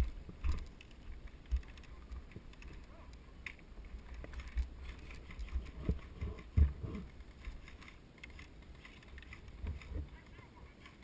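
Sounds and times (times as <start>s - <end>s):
footsteps: 0.0s - 11.0s
low thuds and rustling: 4.0s - 10.2s.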